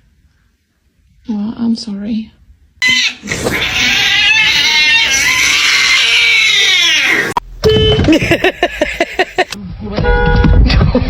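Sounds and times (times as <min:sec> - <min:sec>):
cat yowling: 0:02.8 - 0:07.4.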